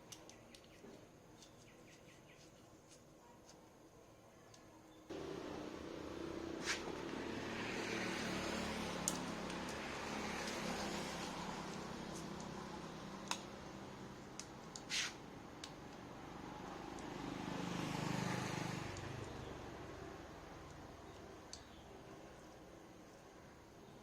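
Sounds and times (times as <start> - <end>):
brief scrape: 6.6 - 7.0, 14.9 - 15.2.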